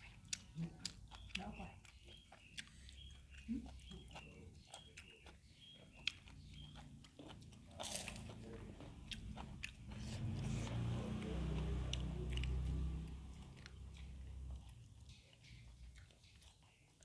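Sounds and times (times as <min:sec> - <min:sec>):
chewing with crunchy clicks: 0:00.0 - 0:17.0.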